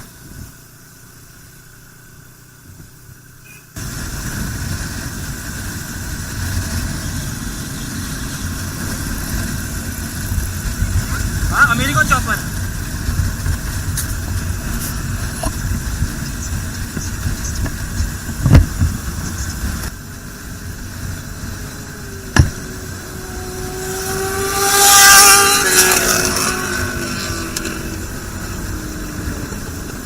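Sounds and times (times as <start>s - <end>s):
road traffic rumbling: 0.0s - 30.0s
vehicle passing close: 18.5s - 30.0s.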